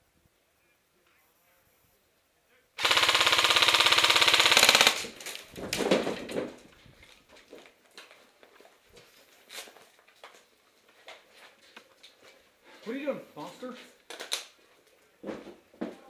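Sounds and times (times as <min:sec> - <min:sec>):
airsoft gun full-auto burst: 0:02.8 - 0:05.3.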